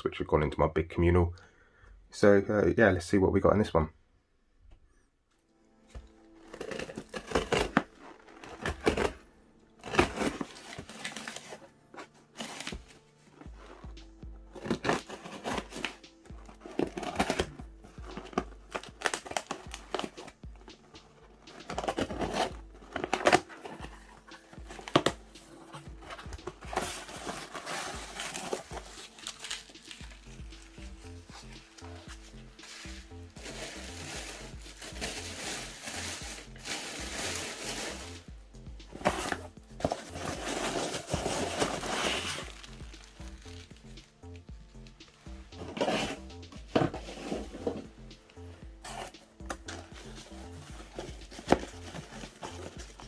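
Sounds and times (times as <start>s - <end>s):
background music: 0.0s - 53.0s
packaging crinkling and tearing: 6.0s - 13.9s, 14.5s - 38.2s, 39.0s - 44.0s, 48.8s - 53.0s.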